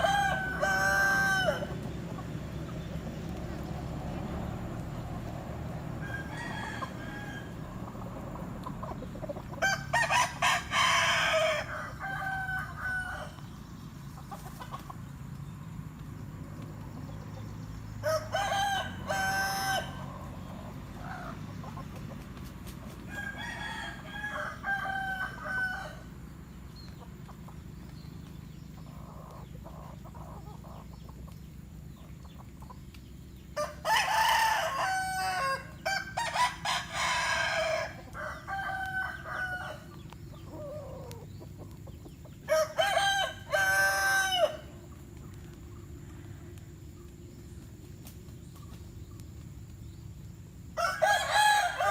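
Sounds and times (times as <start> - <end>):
chickens clucking: 0.0 - 23.4, 24.2 - 33.8, 37.4 - 50.4
roosters crowing: 0.0 - 32.3, 33.2 - 47.6, 49.8 - 51.9.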